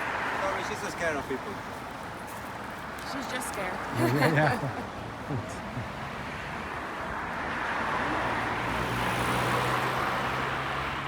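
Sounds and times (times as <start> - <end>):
motor vehicle passing by: 7.3 - 11.0.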